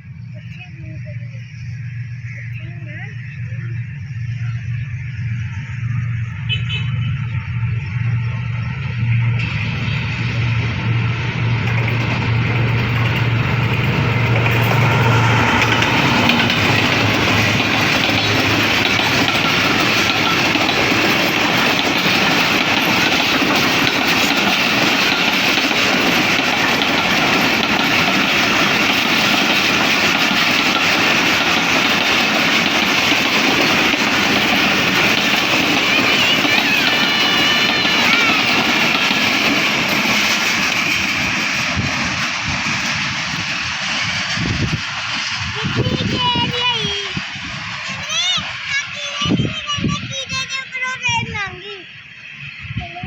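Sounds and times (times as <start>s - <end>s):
train wheels clattering on rails: 0.3s - 53.0s
faint high squealing: 32.4s - 39.9s.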